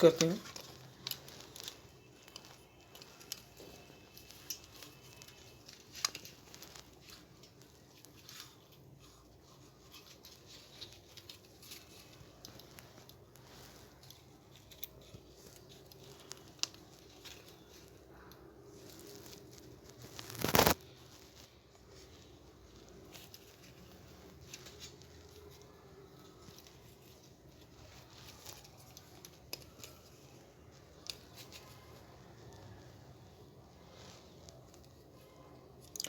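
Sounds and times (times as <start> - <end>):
small plastic parts clicking: 0.0 - 18.0.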